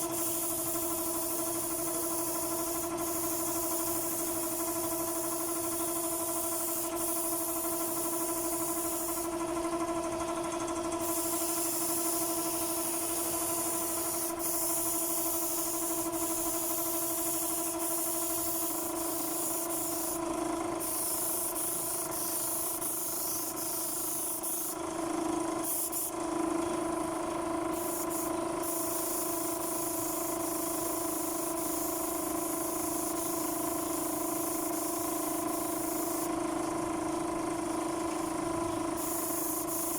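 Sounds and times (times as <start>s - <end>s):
spray gun hissing: 0.0s - 9.6s, 10.4s - 24.9s, 25.6s - 26.2s, 27.7s - 39.9s
steady motor hum: 0.0s - 39.9s.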